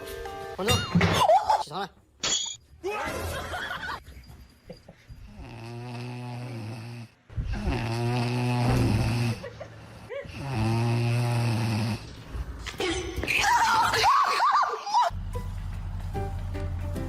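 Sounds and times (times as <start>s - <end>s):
animal snoring: 5.3s - 9.4s, 10.3s - 12.1s.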